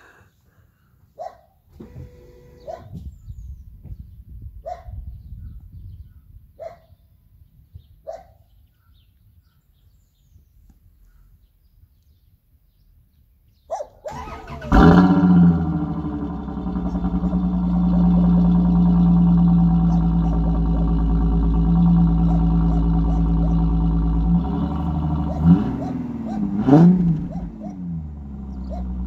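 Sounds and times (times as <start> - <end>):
car engine starting and idling: 1.7 - 2.8, 14.1 - 29.0
engine starter cranking: 1.7 - 2.8, 14.1 - 26.0
animal calls: 22.0 - 24.0, 25.2 - 27.8.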